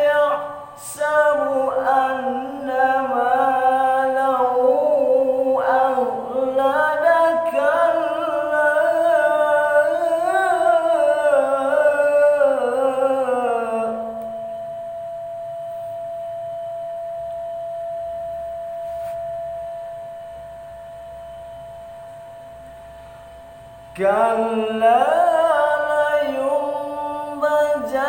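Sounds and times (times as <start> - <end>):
man reciting melodically: 0.0 - 14.2, 23.9 - 28.0
steady tone: 7.5 - 28.0.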